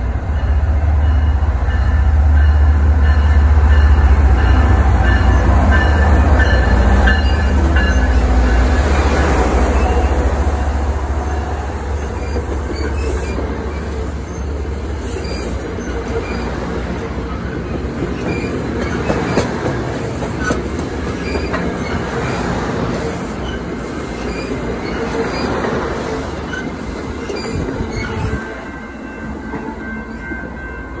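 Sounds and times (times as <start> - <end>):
diesel locomotive low rumble: 0.0 - 31.0
train wheels clattering over rails: 11.7 - 28.4.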